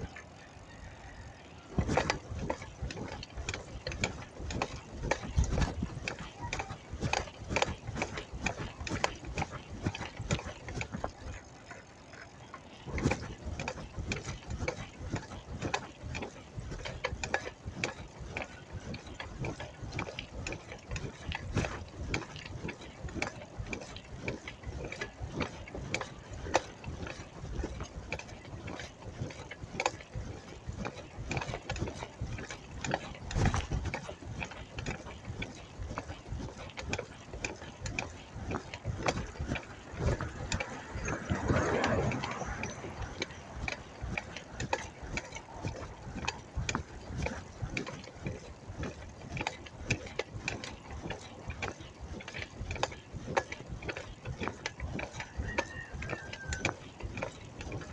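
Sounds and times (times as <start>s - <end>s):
freewheel ratchet ticking: 0.0s - 57.9s
low riding rumble: 37.7s - 47.6s.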